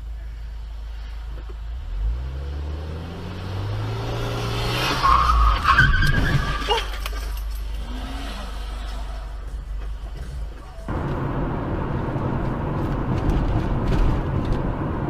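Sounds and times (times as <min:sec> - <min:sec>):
tyres squealing in a skid: 0:04.7 - 0:09.4
car engine running: 0:07.1 - 0:15.0.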